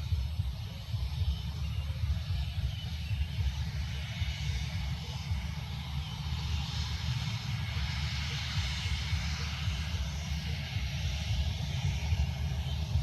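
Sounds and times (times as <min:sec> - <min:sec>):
jet engines passing: 0:00.0 - 0:13.0.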